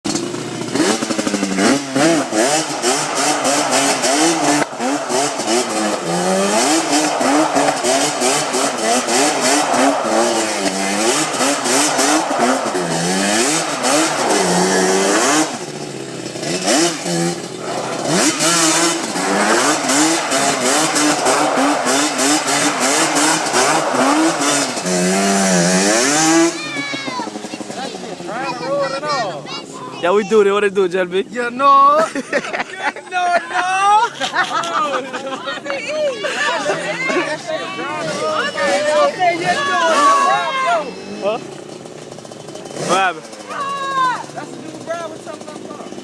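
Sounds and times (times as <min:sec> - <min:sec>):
two-stroke engine revving: 0:00.0 - 0:30.6, 0:37.9 - 0:46.0.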